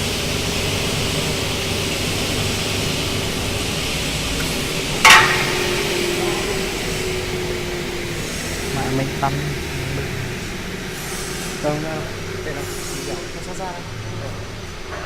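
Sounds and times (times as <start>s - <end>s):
metallic clank ringing: 5.0s - 7.4s.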